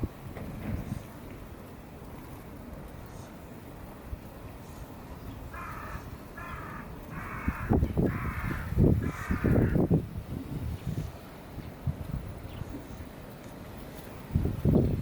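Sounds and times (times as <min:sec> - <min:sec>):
wind rumble on microphone: 0:00.0 - 0:15.0
crow cawing: 0:05.5 - 0:09.8.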